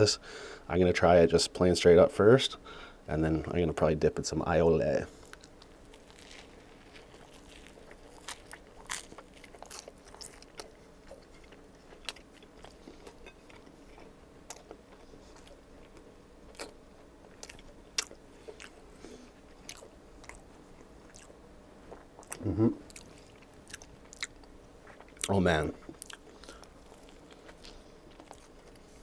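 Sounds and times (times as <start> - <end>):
crisp crunches: 5.1 - 12.8
person chewing: 5.1 - 29.0.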